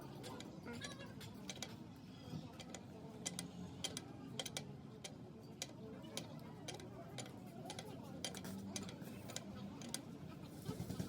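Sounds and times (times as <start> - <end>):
light clicks and taps on parts: 2.6 - 10.0.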